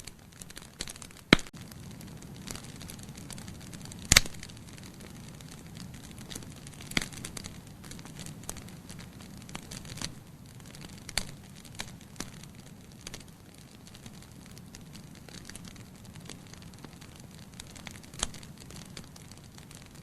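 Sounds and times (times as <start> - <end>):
fire crackles and pops: 0.0 - 20.0
flame rushing: 0.0 - 20.0.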